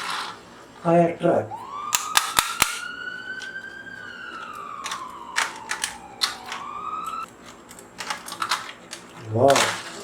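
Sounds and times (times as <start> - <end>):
toy siren wailing: 1.5 - 7.3
sharp clicks: 1.9 - 3.6, 4.3 - 7.3.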